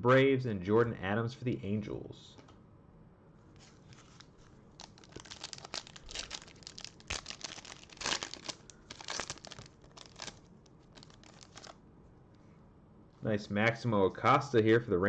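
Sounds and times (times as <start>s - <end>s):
plastic wrapper tearing and crinkling: 3.6s - 11.8s.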